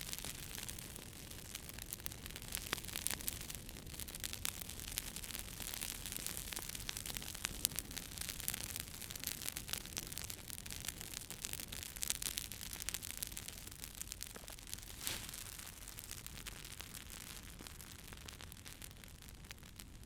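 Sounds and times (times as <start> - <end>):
wood fire crackling and popping: 0.0 - 20.0
steady hiss: 14.7 - 15.9.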